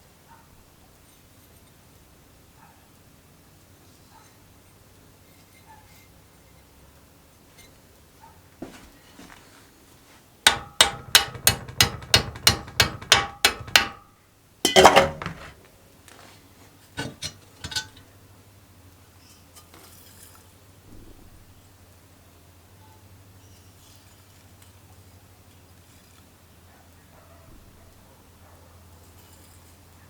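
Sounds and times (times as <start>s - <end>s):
clattering knock: 10.5s - 14.0s, 14.7s - 15.6s, 17.0s - 18.0s
hammer striking metal: 10.5s - 14.0s, 14.7s - 15.6s, 17.0s - 18.0s.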